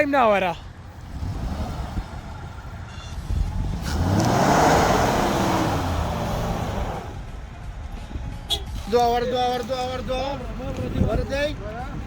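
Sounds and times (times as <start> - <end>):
vehicle engine revving: 1.0 - 7.4.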